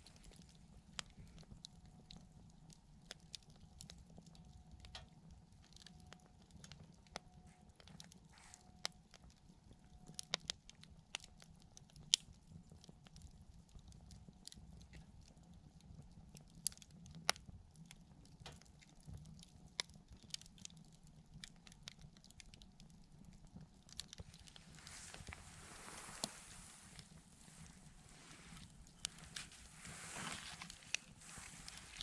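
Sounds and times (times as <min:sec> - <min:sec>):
wood fire crackling and popping: 0:00.0 - 0:32.0
low hiss of flames: 0:07.4 - 0:09.0, 0:23.9 - 0:32.0.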